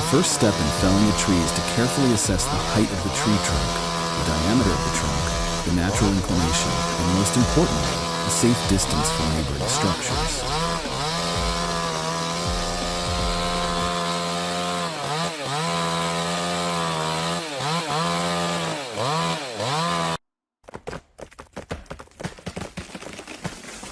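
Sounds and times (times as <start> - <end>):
chainsaw engine revving: 0.0 - 20.2
sharp cracks and knocks: 20.7 - 23.9.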